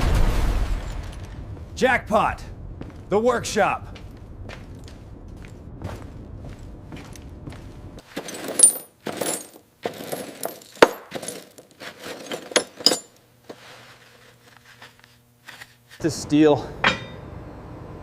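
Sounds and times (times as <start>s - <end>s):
scrap metal clattering: 8.0s - 14.9s.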